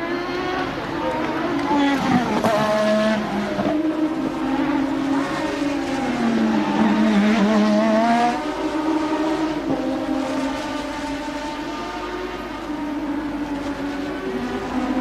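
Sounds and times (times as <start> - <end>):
race car engines at high revs: 0.0 - 15.0.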